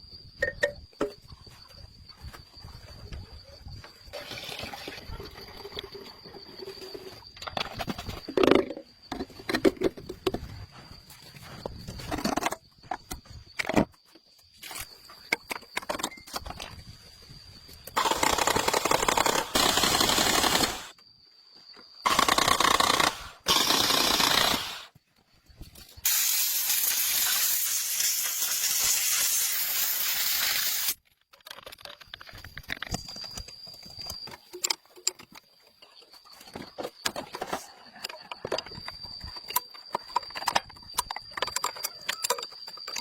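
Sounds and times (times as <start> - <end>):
pressurised spray hissing: 26.0 - 31.0
small clicks and handling knocks: 31.1 - 43.0.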